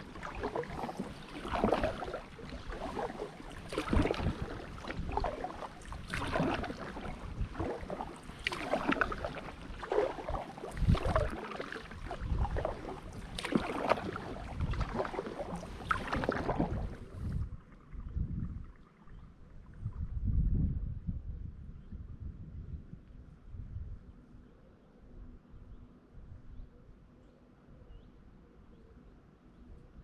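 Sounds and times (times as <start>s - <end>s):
kayak paddle splashing in water: 0.0s - 17.4s.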